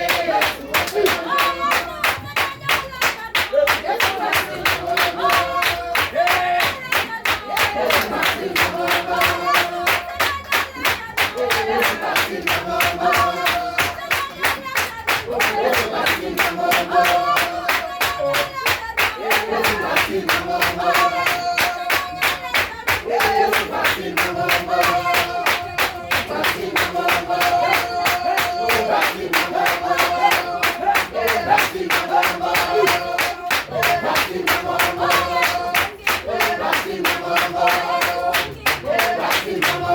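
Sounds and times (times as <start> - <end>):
upbeat gospel music: 0.0 - 39.9.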